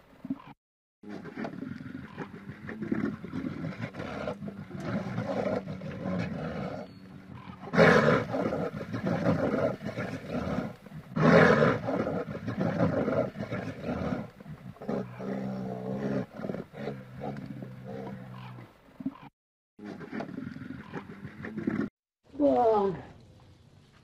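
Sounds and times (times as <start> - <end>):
large animal roaring and growling: 1.1 - 18.7.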